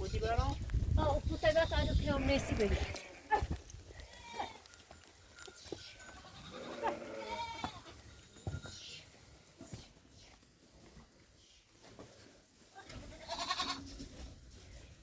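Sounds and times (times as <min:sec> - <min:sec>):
goats bleating: 0:01.7 - 0:04.7, 0:06.2 - 0:08.0, 0:12.8 - 0:13.9.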